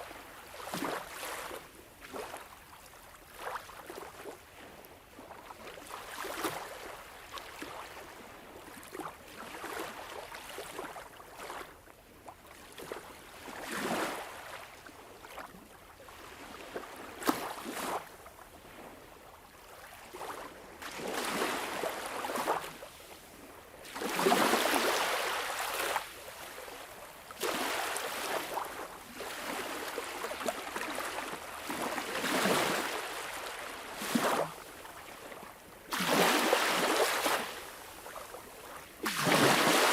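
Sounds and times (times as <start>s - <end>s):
sea waves washing in: 23.8s - 38.3s, 39.0s - 39.9s.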